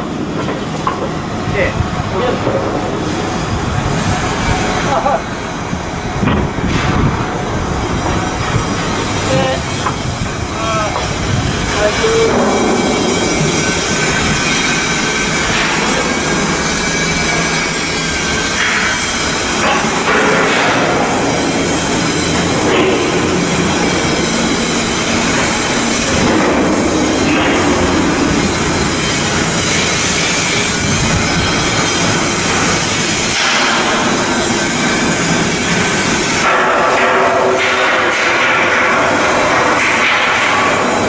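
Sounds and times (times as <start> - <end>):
metal grinding: 0.7 - 41.0.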